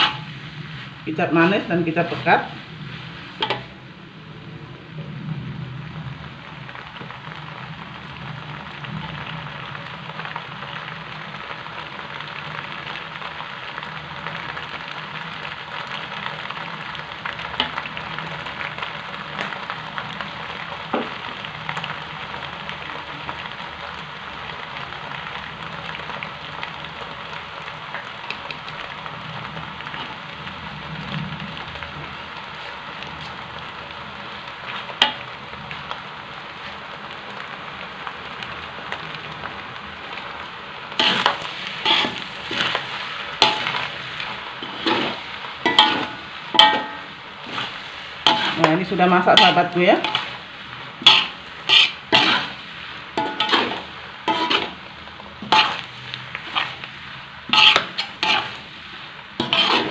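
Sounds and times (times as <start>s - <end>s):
food sizzling in a wok: 0.0s - 59.9s
metal spatula clinking on pan: 45.7s - 47.0s, 51.0s - 52.4s, 53.2s - 54.7s.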